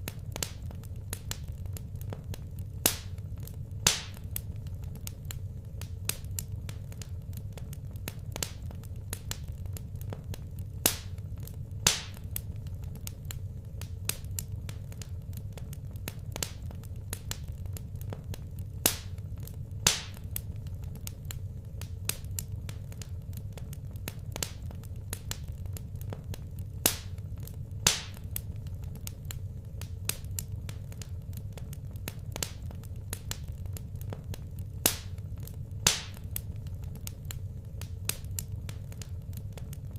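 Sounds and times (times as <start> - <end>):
loud fire pops: 0.0 - 39.9
low fire rumble: 0.0 - 39.9
wood fire crackling: 0.0 - 39.9.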